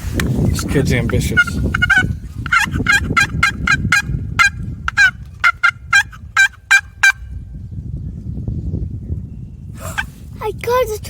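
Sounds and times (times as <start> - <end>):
turkey call raspy yelps: 1.2 - 7.2.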